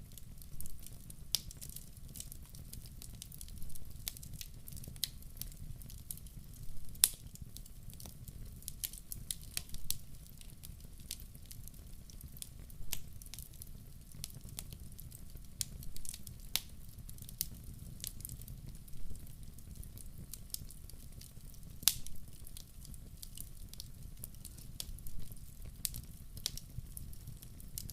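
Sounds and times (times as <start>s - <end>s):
low rumble of burning logs: 0.0s - 27.9s
wood fire crackling and popping: 0.0s - 27.9s.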